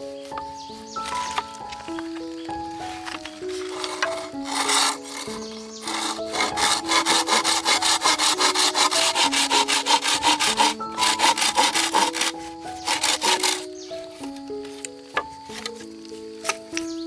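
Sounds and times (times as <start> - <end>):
background music simple melody: 0.0 - 17.0
fast regular scraping strokes: 2.9 - 13.7.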